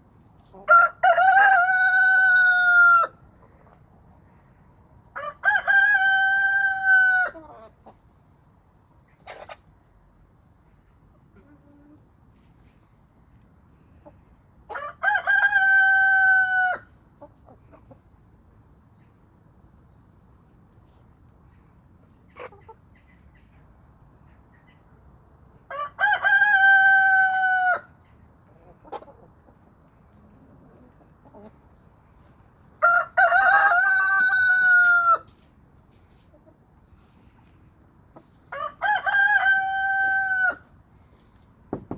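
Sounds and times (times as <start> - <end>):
faint chicken clucks: 0.0 - 41.4
rooster crowing: 0.7 - 3.2, 5.2 - 7.4, 14.8 - 16.9, 25.7 - 27.9, 32.8 - 35.3, 38.5 - 40.6.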